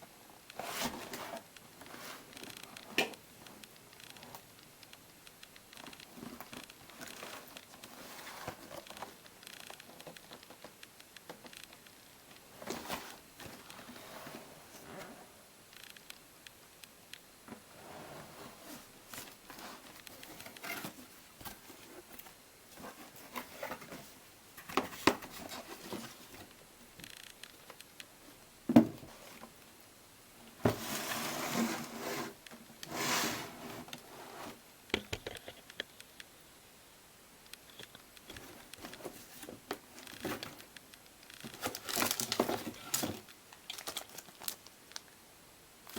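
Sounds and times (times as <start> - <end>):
plastic rustling: 38.2 - 45.2.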